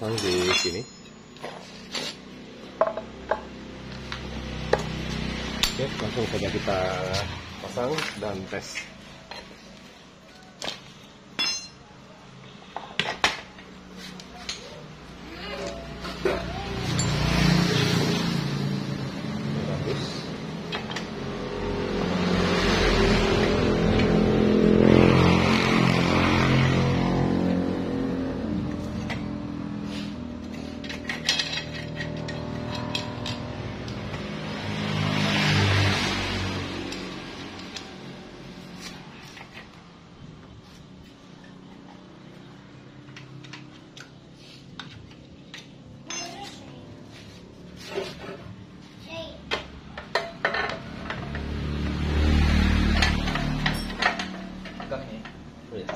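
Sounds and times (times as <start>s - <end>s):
metal tools clinking: 0.0s - 2.4s, 5.6s - 6.2s, 11.4s - 11.9s, 15.5s - 17.4s, 30.4s - 34.0s, 45.5s - 46.7s, 52.9s - 55.9s
motorcycle engine revving: 16.0s - 39.0s, 50.6s - 55.6s.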